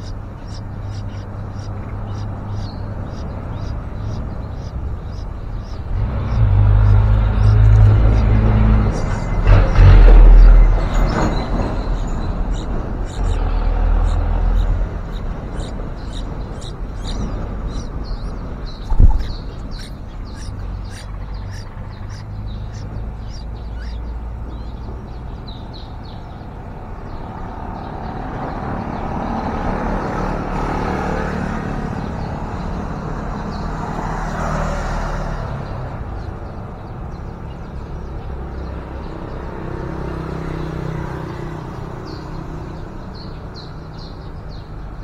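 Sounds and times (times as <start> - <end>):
vehicle passing: 0.0 - 44.3
birds chirping: 0.0 - 45.0
low traffic rumble: 0.0 - 45.0
loud thump: 18.9 - 19.4.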